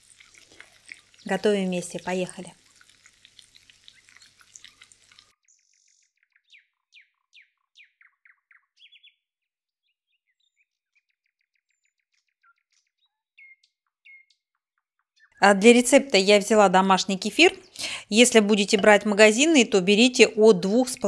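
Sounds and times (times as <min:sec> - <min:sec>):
faint songbird song: 0:03.9 - 0:15.6.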